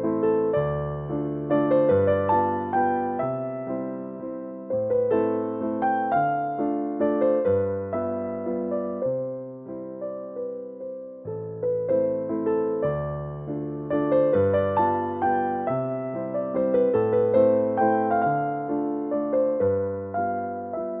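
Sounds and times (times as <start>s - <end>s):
slow gentle piano music: 0.0s - 21.0s.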